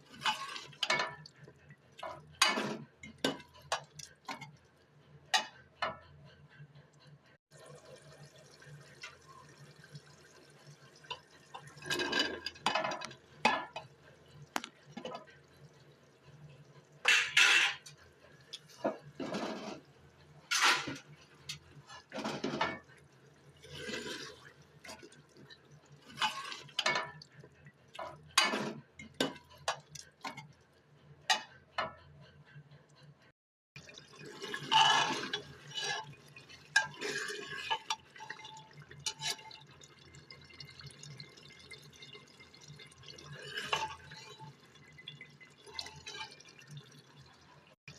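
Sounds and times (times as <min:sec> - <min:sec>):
pot and utensils clinking: 0:00.0 - 0:04.6, 0:11.0 - 0:14.0, 0:17.0 - 0:19.8, 0:20.4 - 0:23.0, 0:23.6 - 0:27.4, 0:28.0 - 0:30.5, 0:31.3 - 0:32.0, 0:33.9 - 0:46.9.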